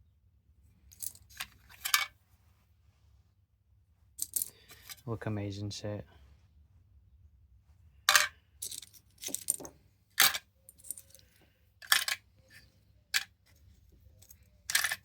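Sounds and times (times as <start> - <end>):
stones clacking on hard surface: 8.1 - 11.2.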